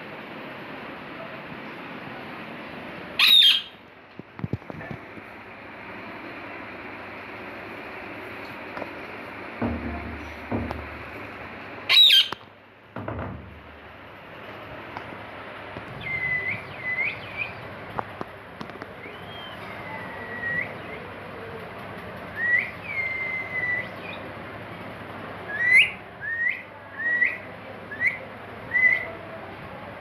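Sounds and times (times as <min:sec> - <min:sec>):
pet bird whistling: 0:03.2 - 0:03.8, 0:11.9 - 0:12.4, 0:16.0 - 0:17.6, 0:19.0 - 0:21.0, 0:22.3 - 0:24.2, 0:25.5 - 0:29.1.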